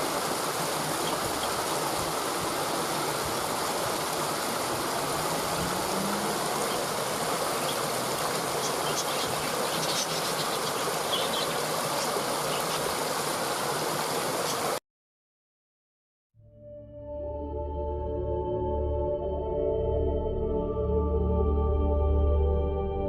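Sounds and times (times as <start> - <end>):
stream water running: 0.0 - 14.8.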